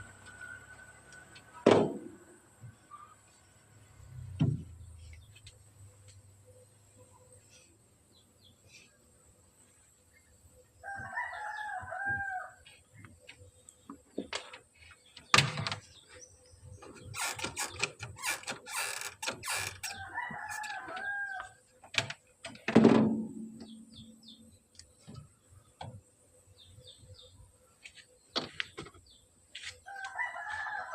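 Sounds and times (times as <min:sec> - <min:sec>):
rooster crowing: 0:10.8 - 0:12.6, 0:19.8 - 0:21.6, 0:29.9 - 0:30.9.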